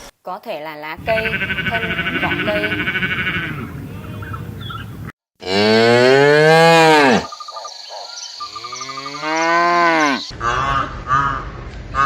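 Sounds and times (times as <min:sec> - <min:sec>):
cow mooing: 0:01.0 - 0:07.3, 0:08.6 - 0:10.7.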